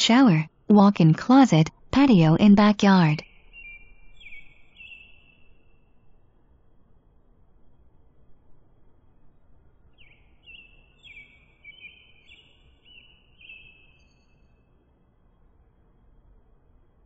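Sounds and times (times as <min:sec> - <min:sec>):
low steady hiss: 0:02.9 - 0:17.0
faint bird chirping: 0:03.2 - 0:06.2, 0:09.9 - 0:15.4.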